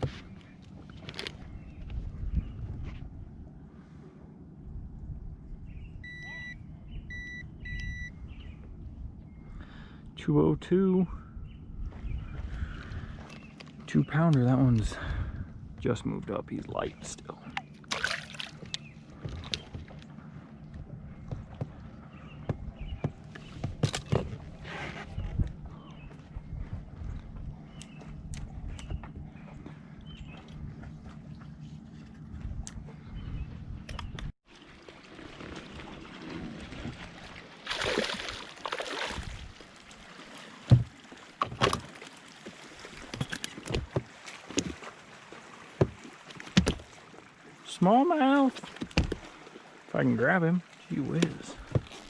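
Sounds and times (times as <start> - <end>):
steady low hum: 0.0 - 34.4
water splashing: 17.0 - 20.0, 34.4 - 52.0
knocks and taps on a boat: 18.6 - 20.1, 20.7 - 24.5, 40.7 - 41.9, 43.0 - 44.8, 45.8 - 46.9, 48.7 - 49.3, 51.2 - 51.9.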